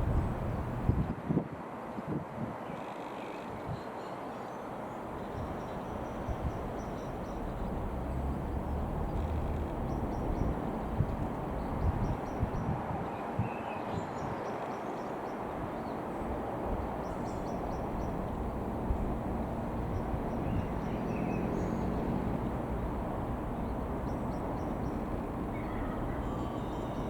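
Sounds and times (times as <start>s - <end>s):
outdoor background rumble: 0.0s - 1.1s, 5.0s - 12.6s, 15.4s - 27.0s
bird chirps: 20.0s - 22.0s.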